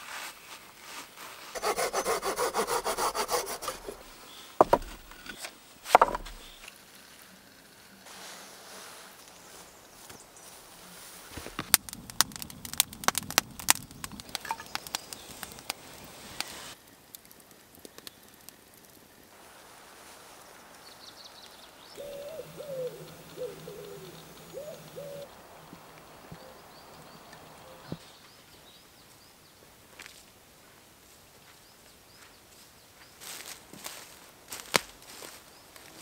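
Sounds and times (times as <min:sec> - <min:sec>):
sharp clicks and knocks: 0:04.6 - 0:06.6
bird calling low and wavering: 0:22.0 - 0:28.0.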